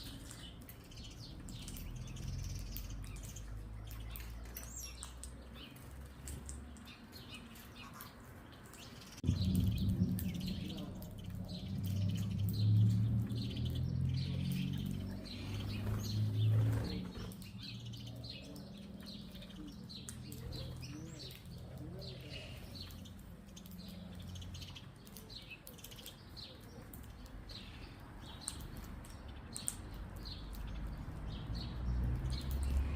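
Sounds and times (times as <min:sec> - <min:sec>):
small birds chirping: 0:00.0 - 0:32.9
low rumble: 0:09.2 - 0:17.4.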